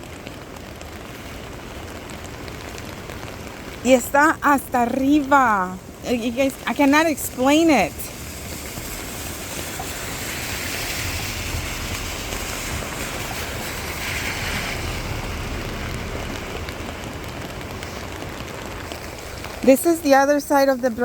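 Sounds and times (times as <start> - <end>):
creek rushing: 3.5 - 20.1.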